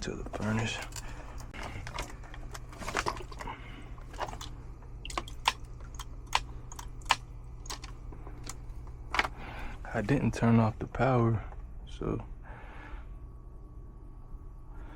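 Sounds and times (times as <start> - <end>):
steady low hum: 0.0 - 14.9
hands handling pump wiring clicks: 0.3 - 3.4, 4.0 - 9.4.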